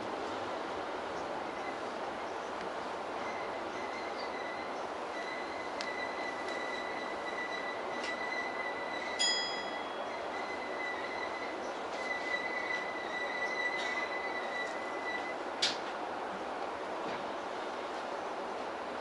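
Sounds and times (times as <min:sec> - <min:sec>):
train equipment whine: 0:00.0 - 0:19.0
faint clicks: 0:05.8 - 0:06.6.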